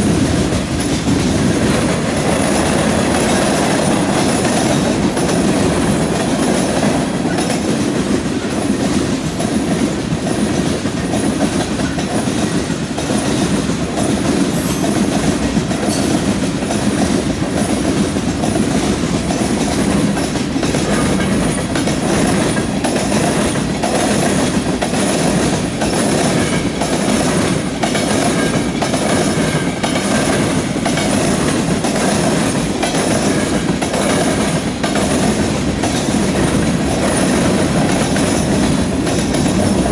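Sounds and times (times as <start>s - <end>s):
train wheels rumbling on track: 0.0s - 39.9s
wheels clicking over rail joints: 0.0s - 39.9s.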